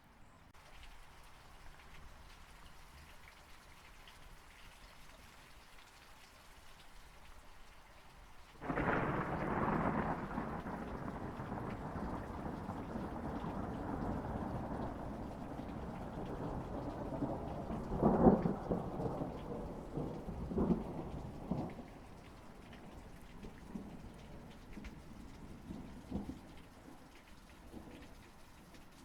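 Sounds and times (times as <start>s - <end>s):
rain pattering: 0.6s - 29.0s
thunder rumbling: 8.6s - 26.6s.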